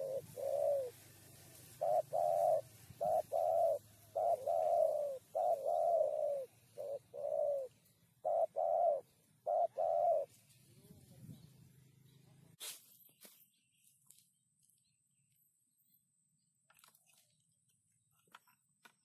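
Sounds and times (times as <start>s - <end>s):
dove cooing: 0.0s - 10.4s.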